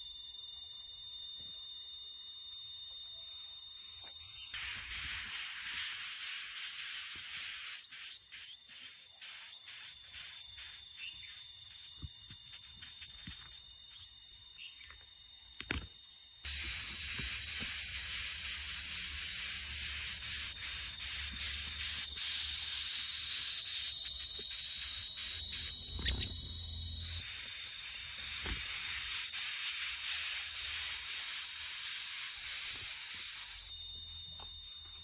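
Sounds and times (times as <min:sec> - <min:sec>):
faint insect-like drone: 0:00.0 - 0:35.0
high-pitched background hiss: 0:04.0 - 0:33.8.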